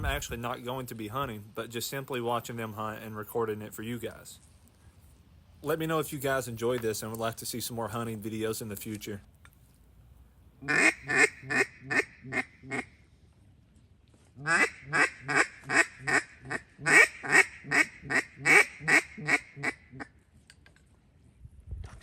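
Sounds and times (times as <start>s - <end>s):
duck quacking: 10.6s - 13.0s, 14.4s - 20.1s.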